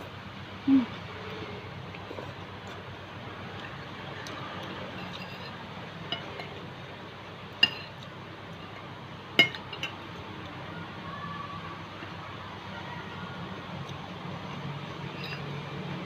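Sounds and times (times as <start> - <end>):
cutlery clinking against a dish: 7.6 - 8.0, 9.4 - 10.0, 15.2 - 15.5.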